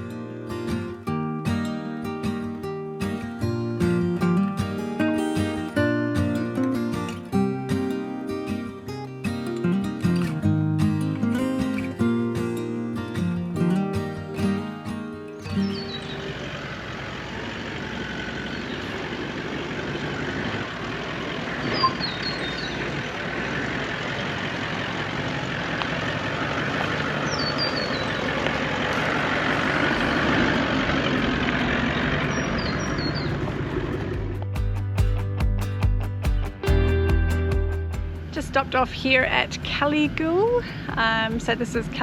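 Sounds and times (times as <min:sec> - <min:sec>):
vehicle road and engine noise: 0:00.0 - 0:42.0
faint short high chirp: 0:21.7 - 0:22.7.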